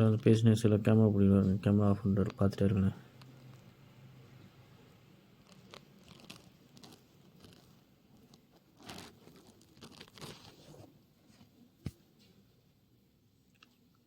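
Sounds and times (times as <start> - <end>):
faint rustling and crinkling: 0.0 - 3.8, 5.3 - 12.5.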